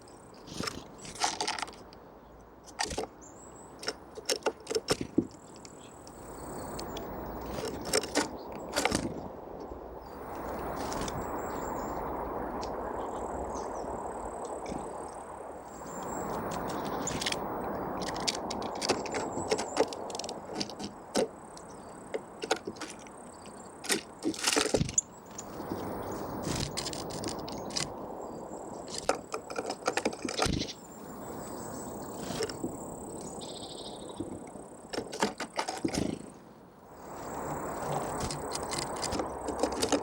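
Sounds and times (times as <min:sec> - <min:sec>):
birds cracking seeds: 0:00.3 - 0:40.0
low background rumble: 0:05.7 - 0:24.2.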